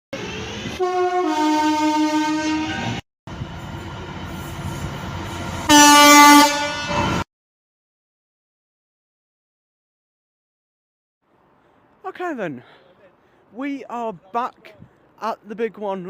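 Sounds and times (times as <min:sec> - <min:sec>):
loud train horn blast: 0:00.2 - 0:03.0, 0:05.5 - 0:07.2
train running past: 0:00.2 - 0:07.2
two-note train horn: 0:00.8 - 0:03.0, 0:05.6 - 0:07.2.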